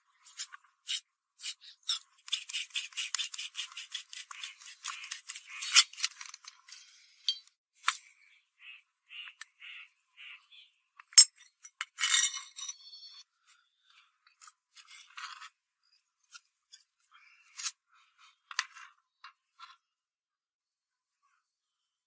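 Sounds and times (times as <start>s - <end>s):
scraping strokes on metal: 0.2s - 7.1s.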